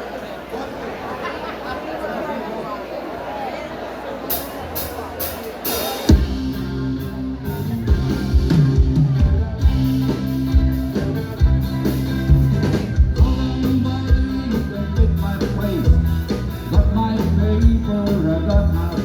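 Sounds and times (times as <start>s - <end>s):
drum kit beat: 4.3s - 19.0s
live band music: 4.3s - 19.0s.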